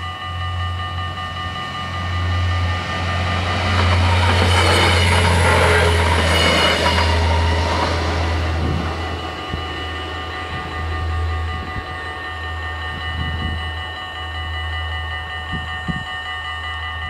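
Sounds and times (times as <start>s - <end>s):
crossing bells ringing: 0.0s - 17.0s
diesel railcar passing: 0.0s - 17.0s.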